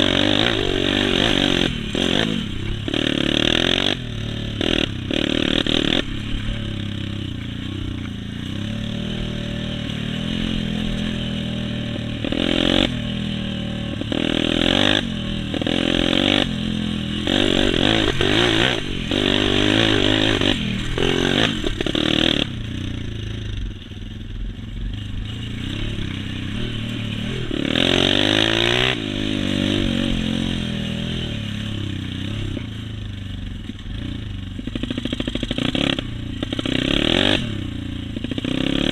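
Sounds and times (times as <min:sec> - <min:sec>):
dirt bike engines revving: 0:00.0 - 0:38.9.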